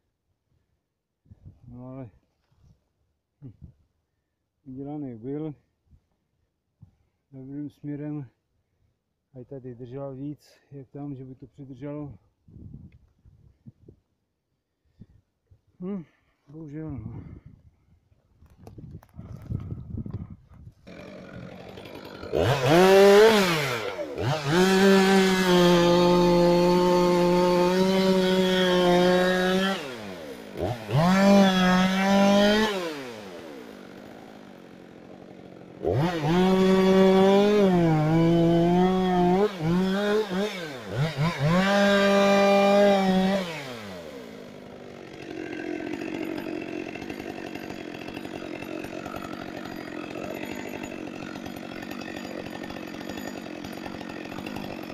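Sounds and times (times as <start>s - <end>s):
chainsaw cutting wood: 18.4s - 19.8s, 20.5s - 54.9s
chainsaw idling: 20.8s - 54.9s.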